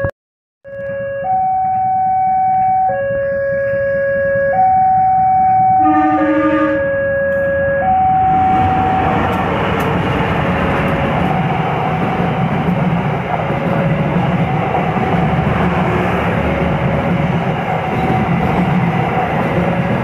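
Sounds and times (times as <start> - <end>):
train rumbling over rails: 8.0 - 20.0.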